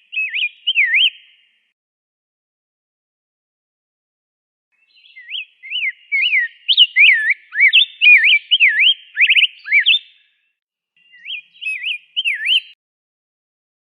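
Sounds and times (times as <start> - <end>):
bird singing warbled phrases: 0.0 - 1.7, 4.8 - 12.8.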